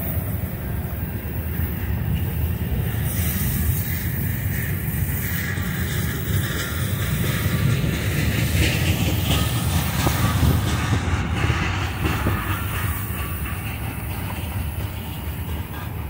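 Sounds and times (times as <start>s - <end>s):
freight train rumbling past: 0.0s - 16.0s
wheels clacking over rail joints: 0.0s - 16.0s.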